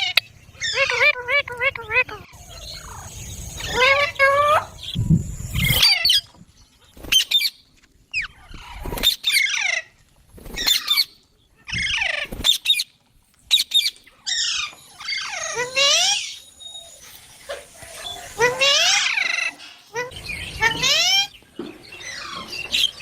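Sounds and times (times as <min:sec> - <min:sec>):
parrot chirping: 0:00.0 - 0:06.3, 0:13.5 - 0:23.0.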